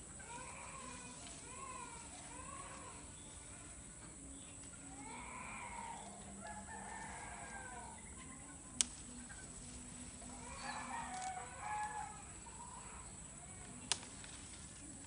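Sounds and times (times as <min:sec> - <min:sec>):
drawn-out animal calls: 0:00.0 - 0:08.6.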